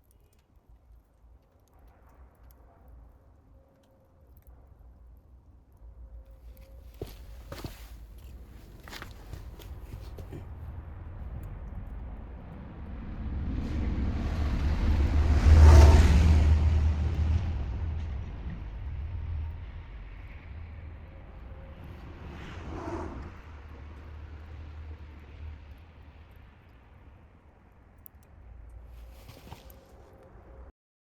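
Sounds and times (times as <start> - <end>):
low rumble: 5.8 - 27.3
car driving past: 9.8 - 25.8.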